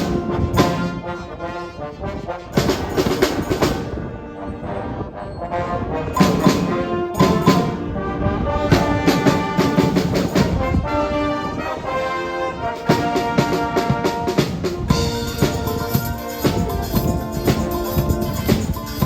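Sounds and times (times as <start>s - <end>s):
drums and percussion: 0.0s - 1.0s, 2.4s - 4.0s, 6.1s - 7.9s, 8.7s - 10.8s, 12.7s - 19.0s
brass instruments playing music: 0.0s - 19.0s.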